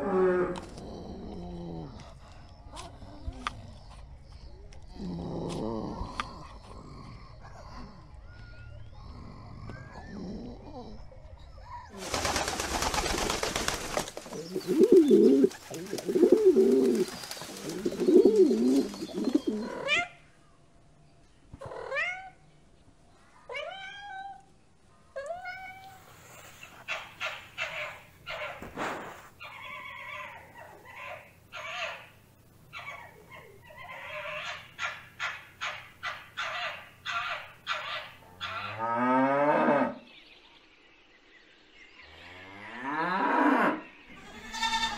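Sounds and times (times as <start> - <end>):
deep noisy animal grunts: 4.9 - 8.3, 8.9 - 11.3.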